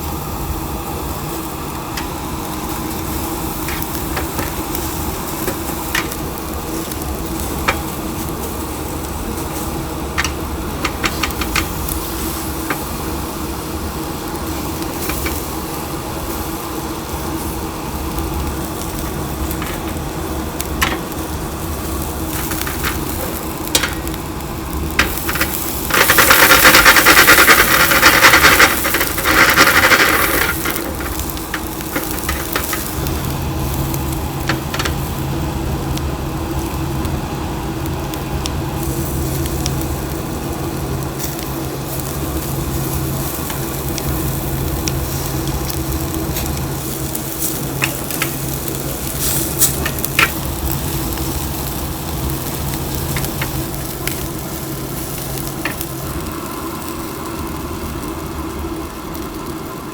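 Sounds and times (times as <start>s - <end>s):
loud hiss: 0.0s - 37.0s, 38.6s - 57.0s
chicken sizzling on grill: 0.0s - 59.9s
steady hum: 0.0s - 59.9s
utensils clicking: 3.6s - 6.2s, 22.2s - 24.2s, 25.0s - 33.3s.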